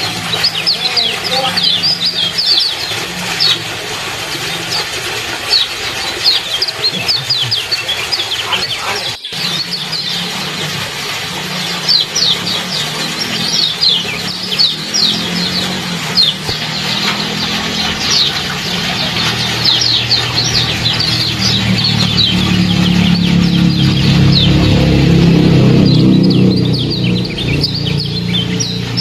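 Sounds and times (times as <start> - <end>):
songbirds chirping: 0.0 - 29.0
low hum: 9.3 - 29.0.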